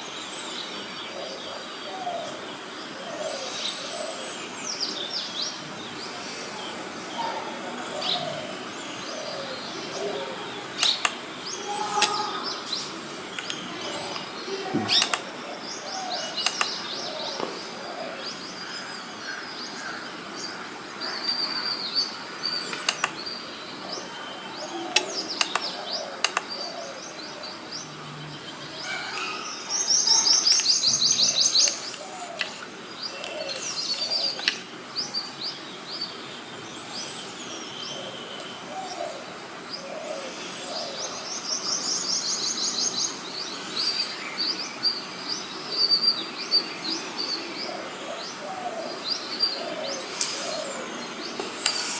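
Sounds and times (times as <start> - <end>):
birds chirping: 0.0 - 51.9
sharp clicks: 10.8 - 15.4, 16.3 - 16.9, 22.6 - 23.3, 24.9 - 26.6, 51.4 - 51.9.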